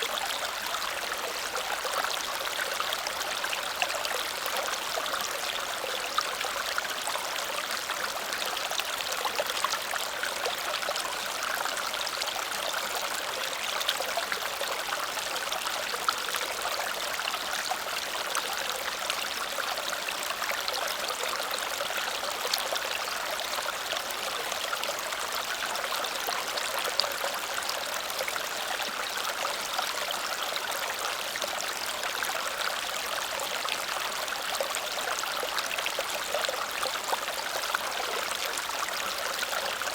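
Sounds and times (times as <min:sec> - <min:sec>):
small waterfall over stones: 0:00.0 - 0:39.9.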